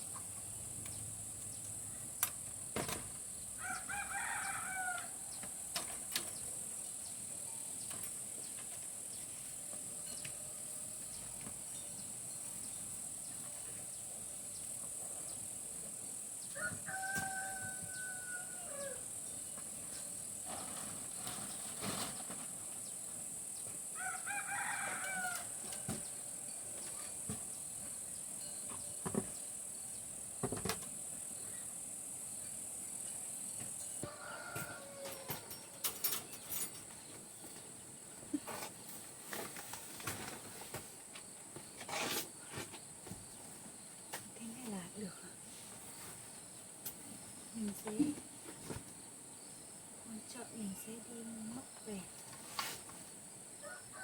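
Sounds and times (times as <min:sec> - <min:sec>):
steady high-pitched hiss: 0:00.0 - 0:54.0
rooster crowing: 0:03.6 - 0:05.4, 0:16.6 - 0:19.1, 0:24.0 - 0:26.2, 0:34.0 - 0:35.8, 0:53.6 - 0:54.0.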